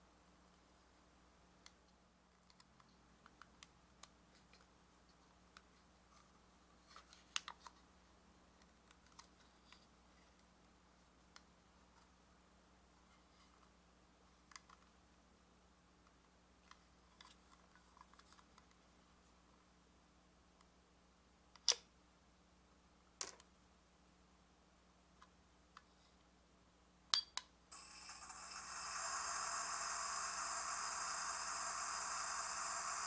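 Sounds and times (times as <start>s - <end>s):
electronic buzzing hum: 27.7s - 33.0s.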